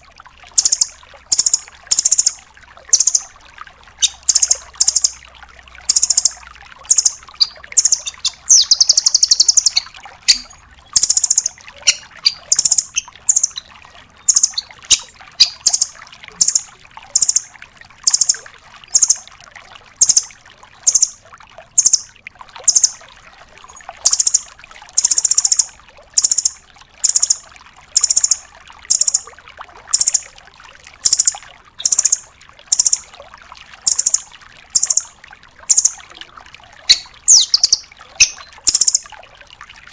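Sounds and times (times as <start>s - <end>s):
nuthatch calling: 0.6s - 2.3s, 3.0s - 3.2s, 4.0s - 5.2s, 5.9s - 17.4s, 21.8s - 22.0s, 31.0s - 33.0s, 33.9s - 34.2s, 34.8s - 35.1s, 35.7s - 36.0s, 36.9s - 39.0s
bird rattling trill: 5.9s - 13.6s, 14.3s - 16.6s.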